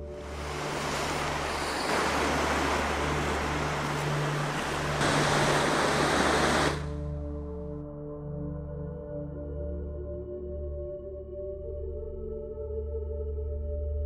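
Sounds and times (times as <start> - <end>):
ambient music drone: 0.0 - 14.0
surf breaking over rocks: 0.1 - 6.9.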